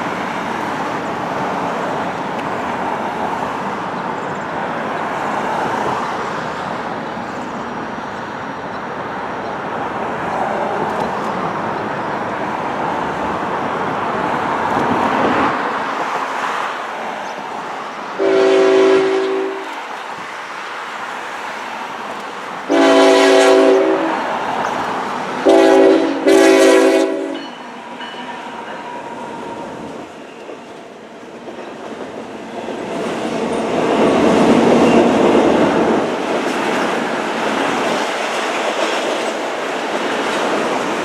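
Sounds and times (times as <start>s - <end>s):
train or traffic noise: 0.0s - 41.0s
multi-tone train horn: 18.2s - 19.8s, 22.7s - 24.4s, 25.4s - 28.8s.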